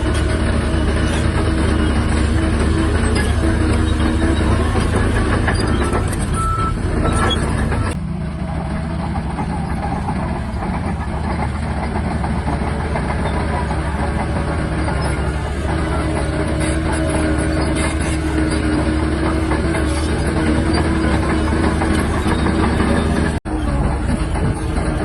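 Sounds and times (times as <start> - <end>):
bulldozer diesel engine running: 0.0 - 25.0
steel tracks clattering: 0.0 - 25.0
short beeps: 6.4 - 7.9.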